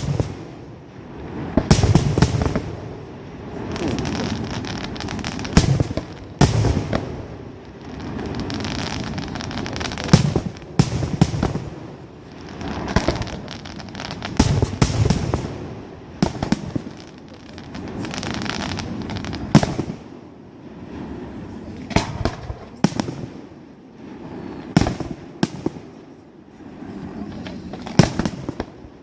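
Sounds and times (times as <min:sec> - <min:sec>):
firework crackle: 0:00.0 - 0:29.0
rumbling hiss of launches: 0:00.0 - 0:29.0.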